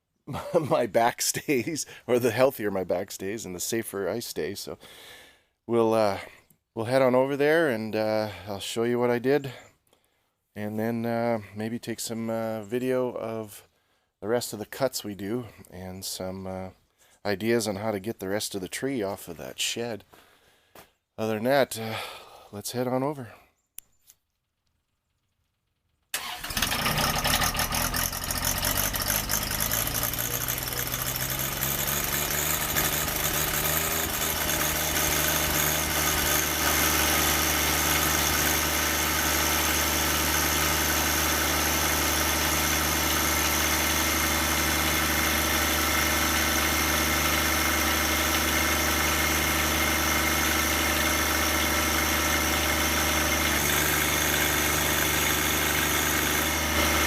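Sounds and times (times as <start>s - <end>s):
tractor engine running: 26.2s - 57.0s.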